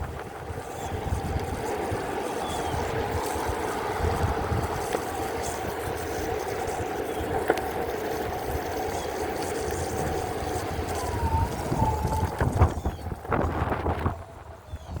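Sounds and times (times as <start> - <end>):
engine hum: 0.0 - 15.0
wind-like noise: 0.0 - 15.0
faint wavering whistle: 10.8 - 15.0.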